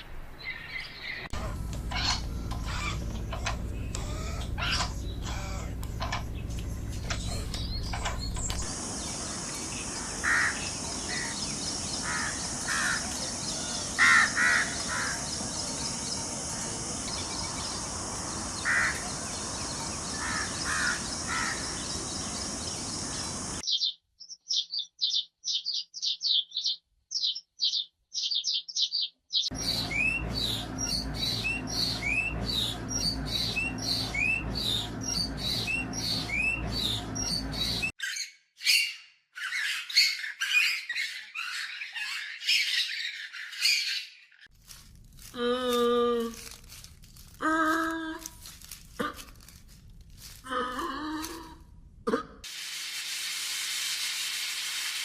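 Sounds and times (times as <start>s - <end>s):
birds calling and chirping: 0.0s - 44.5s
steady high hiss: 8.5s - 23.6s, 52.5s - 55.0s.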